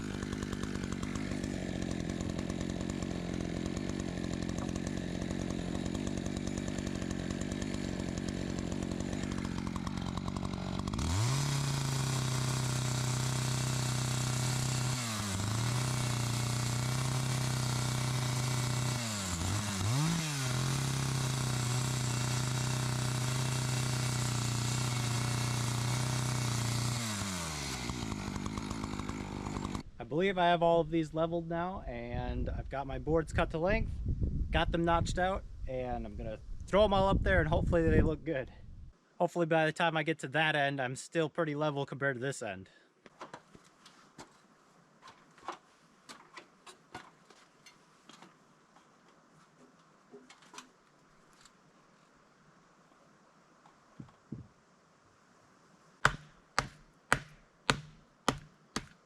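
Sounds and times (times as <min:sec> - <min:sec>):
chainsaw idling and cutting wood: 0:00.0 - 0:30.0, 0:56.0 - 0:59.0.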